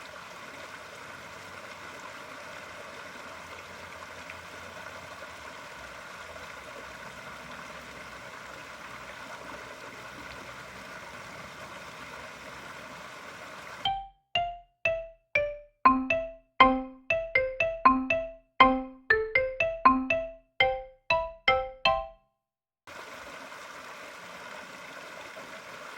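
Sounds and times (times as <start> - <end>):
running water in pond: 0.0 - 17.2, 22.9 - 25.9.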